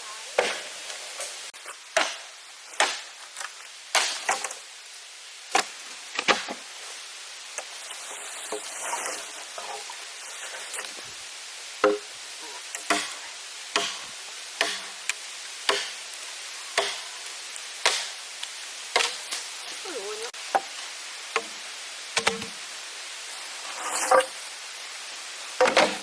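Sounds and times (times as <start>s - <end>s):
steady background hiss: 0.0s - 26.0s
hand tool chopping strikes: 11.8s - 12.1s, 12.8s - 13.2s, 13.8s - 14.0s, 14.6s - 14.9s, 15.7s - 15.9s, 16.8s - 17.0s, 17.8s - 18.1s, 22.2s - 22.6s.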